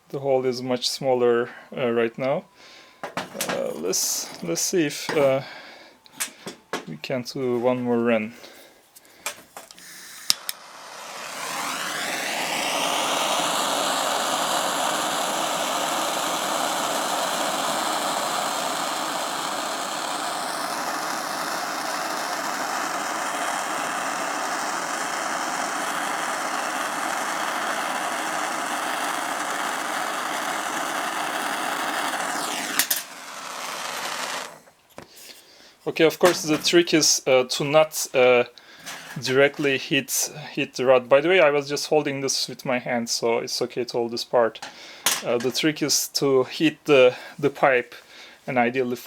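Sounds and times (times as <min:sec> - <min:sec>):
gas torch hissing: 0:02.9 - 0:06.7, 0:09.6 - 0:37.1, 0:38.1 - 0:40.4.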